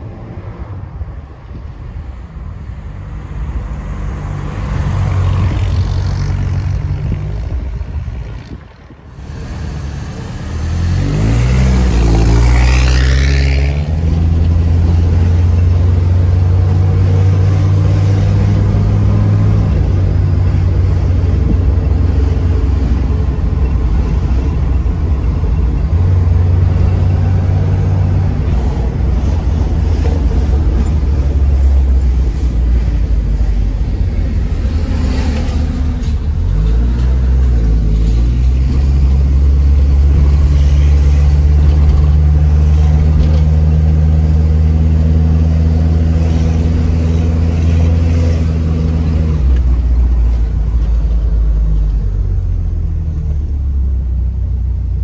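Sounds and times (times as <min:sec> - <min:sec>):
car engine accelerating: 0:09.2 - 0:24.7.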